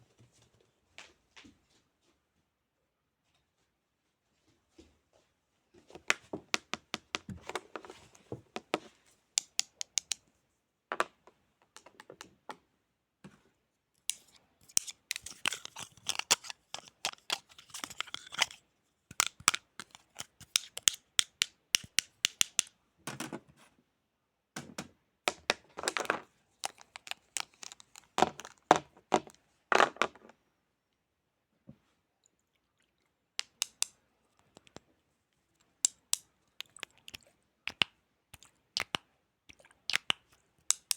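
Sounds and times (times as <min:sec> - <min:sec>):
crisp clicks and rustles: 0:14.1 - 0:22.6, 0:25.6 - 0:30.4.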